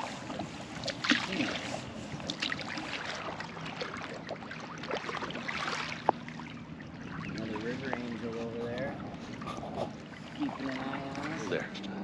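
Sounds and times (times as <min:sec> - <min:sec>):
canoe paddle splashing in water: 0:00.0 - 0:08.6.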